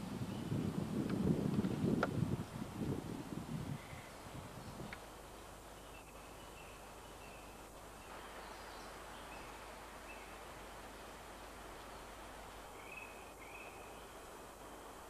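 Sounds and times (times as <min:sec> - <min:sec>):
steady forest hiss: 0:00.0 - 0:15.0
small birds chirping: 0:03.7 - 0:10.5, 0:11.8 - 0:15.0.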